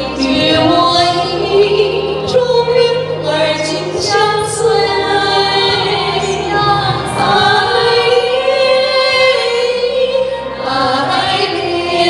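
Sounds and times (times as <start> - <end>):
women singing together: 0.0 - 12.0.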